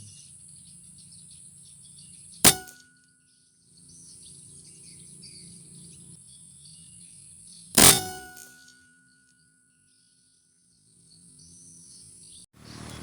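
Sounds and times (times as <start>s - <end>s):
short metallic ring: 2.4s - 3.3s, 7.8s - 9.6s
air rifle shot: 7.8s - 8.5s.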